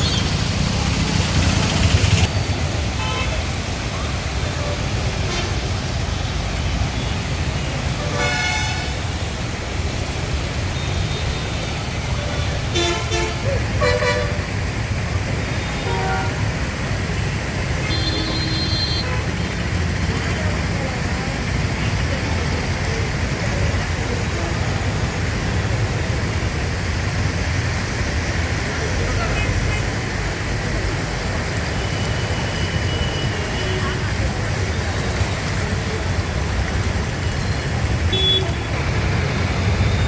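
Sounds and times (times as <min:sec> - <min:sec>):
heavy rain on a flooded street: 0:00.0 - 0:40.0
road traffic rumble: 0:00.0 - 0:40.0
vehicle horn: 0:08.1 - 0:09.0, 0:17.8 - 0:19.3, 0:38.1 - 0:38.7.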